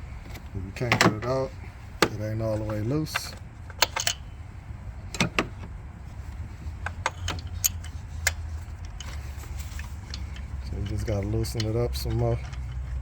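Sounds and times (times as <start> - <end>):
low steady hum: 0.0 - 13.0
metal tools clicking and tapping: 2.0 - 4.3, 6.8 - 13.0.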